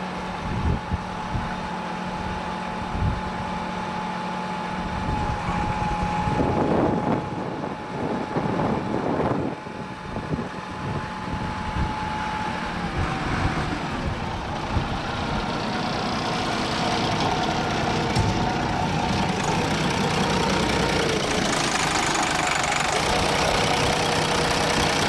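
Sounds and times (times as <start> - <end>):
diesel forklift engine running: 0.0 - 25.0
high-pitched whine: 4.5 - 23.9.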